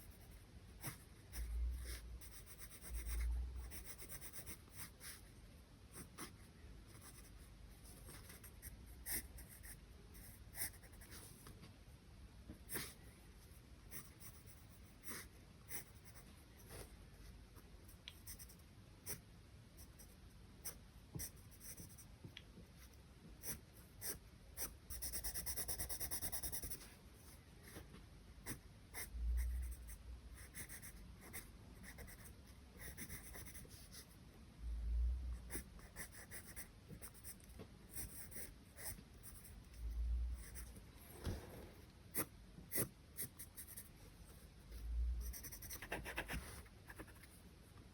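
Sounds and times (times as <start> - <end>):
pencil scratching on paper: 0.0 - 5.3, 5.9 - 11.3, 13.9 - 16.9, 23.4 - 27.0, 28.4 - 34.2, 35.5 - 43.9, 45.2 - 47.4.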